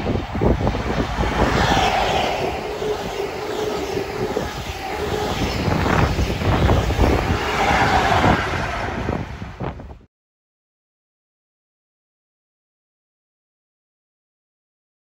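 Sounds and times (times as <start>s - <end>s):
diesel engine whine: 0.0s - 9.8s
train wheels rumbling on rails: 0.0s - 9.9s
wind buffeting microphone: 0.0s - 10.1s.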